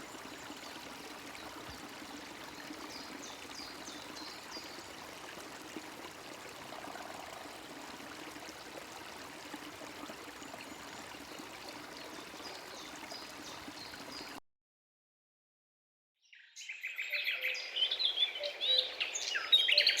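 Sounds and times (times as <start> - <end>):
running water rushing: 0.0 - 14.4.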